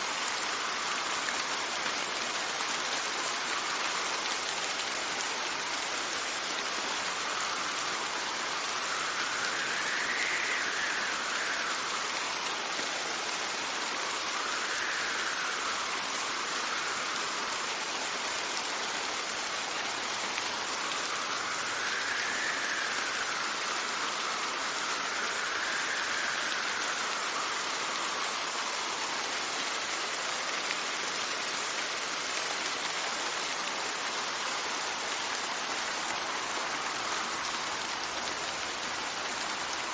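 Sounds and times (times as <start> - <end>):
rain hissing: 0.0 - 39.9
wind gusting and whistling: 7.0 - 30.0.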